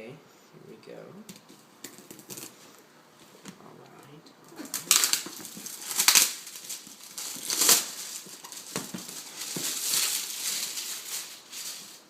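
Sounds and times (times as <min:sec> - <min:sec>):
packaging rustling: 0:01.4 - 0:02.8, 0:04.5 - 0:12.0.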